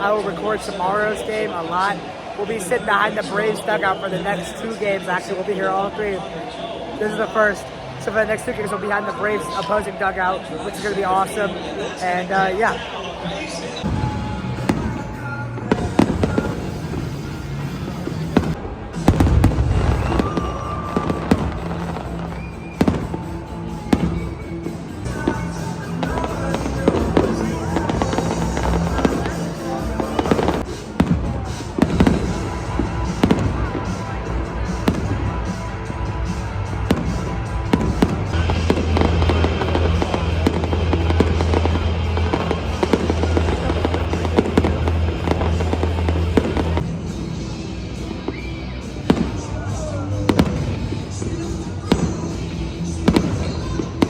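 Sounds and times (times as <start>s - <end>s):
music: 0.0s - 54.0s
fireworks bangs with crackle: 13.8s - 24.5s, 25.1s - 54.0s.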